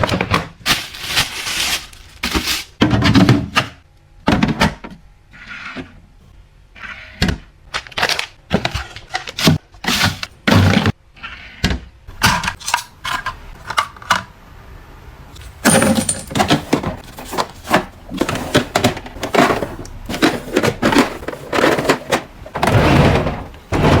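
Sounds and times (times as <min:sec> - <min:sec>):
rustling: 0:00.7 - 0:02.7.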